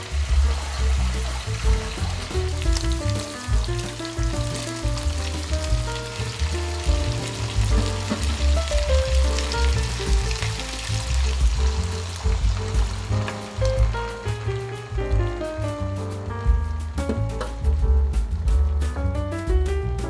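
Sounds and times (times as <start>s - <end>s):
food sizzling in a frying pan: 0.0s - 15.0s
background music: 0.0s - 20.0s.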